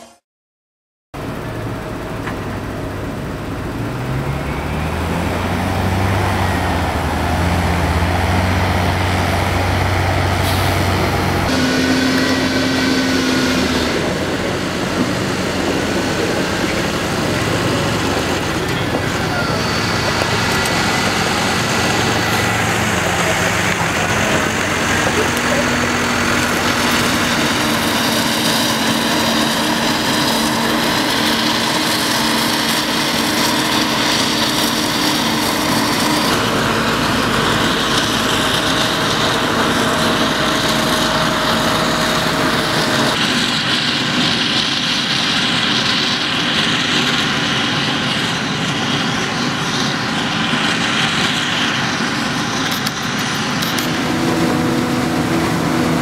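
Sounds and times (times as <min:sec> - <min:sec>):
forage harvester running: 0:01.2 - 0:56.0
tractor engines running: 0:01.2 - 0:56.0.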